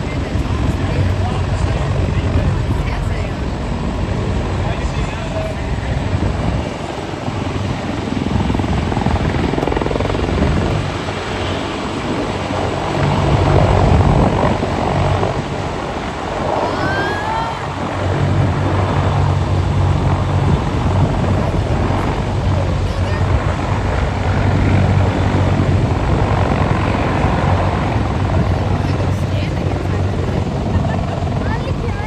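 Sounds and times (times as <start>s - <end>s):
aircraft engine drone overhead: 0.0s - 32.0s.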